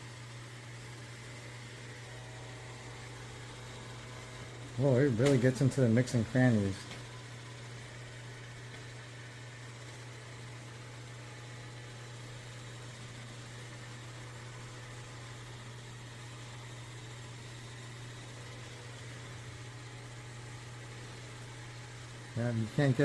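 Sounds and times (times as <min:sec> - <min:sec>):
robot vacuum humming: 0:00.8 - 0:11.2.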